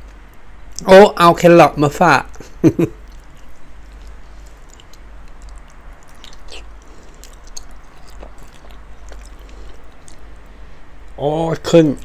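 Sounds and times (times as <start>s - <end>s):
low steady hum: 0.0s - 12.0s
wet mouth clicks: 2.3s - 10.3s
person chewing food: 2.3s - 11.2s.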